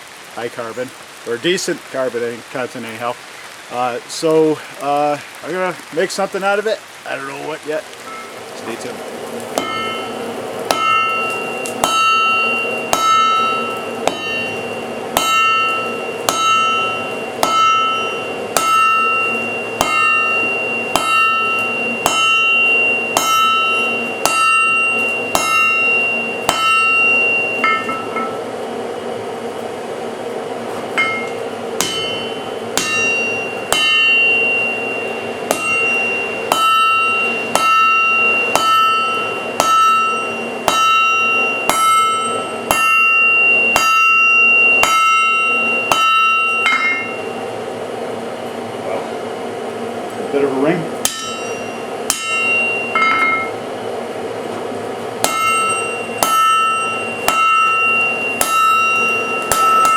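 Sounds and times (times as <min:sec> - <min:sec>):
anvil ringing: 0:09.6 - 0:28.4, 0:31.0 - 0:47.4, 0:51.0 - 0:53.6, 0:55.2 - 0:59.9
hammer striking steel on anvil: 0:09.6 - 0:28.4, 0:31.0 - 0:47.3, 0:51.0 - 0:53.6, 0:55.2 - 0:59.9.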